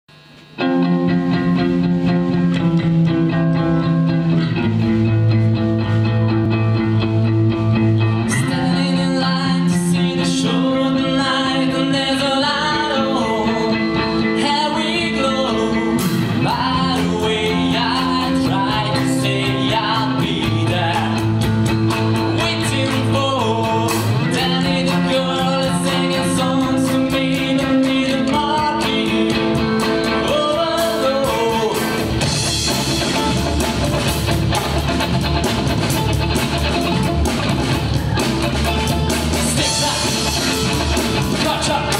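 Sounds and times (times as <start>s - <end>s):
guitar chords: 0.1s - 41.9s
bass notes: 0.3s - 41.9s
person singing: 8.1s - 32.4s, 36.9s - 41.9s.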